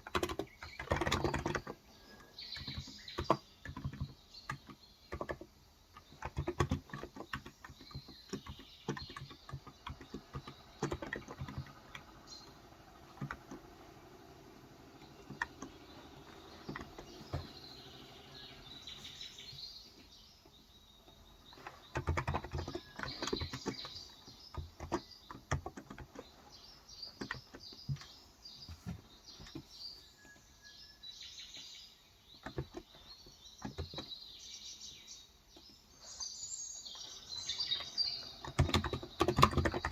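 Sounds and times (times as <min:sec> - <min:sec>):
typing on keyboard: 0:00.0 - 0:01.8, 0:02.6 - 0:14.1, 0:21.6 - 0:26.2, 0:37.6 - 0:39.9
birds chirping: 0:00.0 - 0:39.9.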